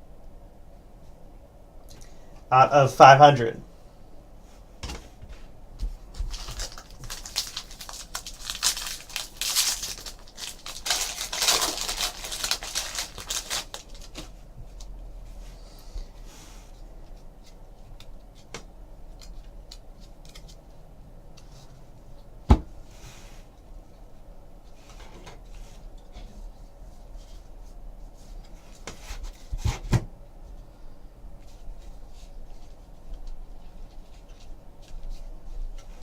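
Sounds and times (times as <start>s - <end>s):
foil packs tearing and crinkling: 6.2s - 14.2s
cards being handled: 6.2s - 14.9s.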